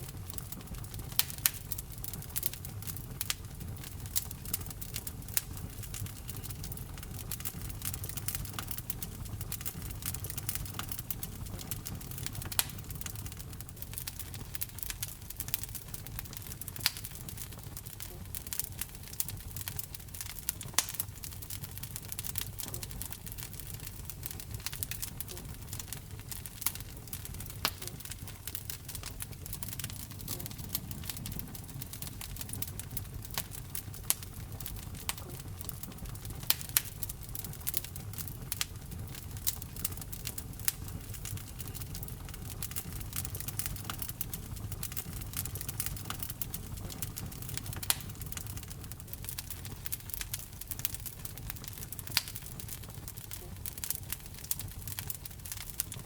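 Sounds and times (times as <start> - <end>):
fire crackling: 0.0 - 56.0
fire popping: 0.0 - 56.0
fire rumbling: 0.0 - 56.0.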